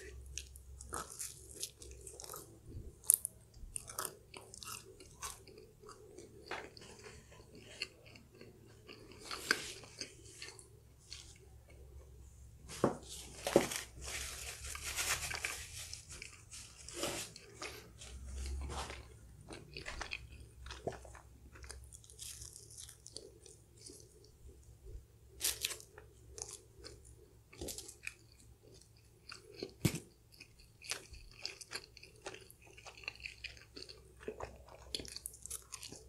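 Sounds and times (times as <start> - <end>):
person biting and chewing food: 0.0 - 11.9, 15.3 - 24.3, 25.3 - 36.0.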